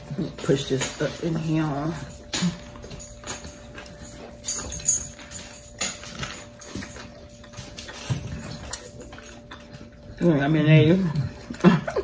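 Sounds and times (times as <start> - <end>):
people chewing and smacking lips: 0.0 - 12.0.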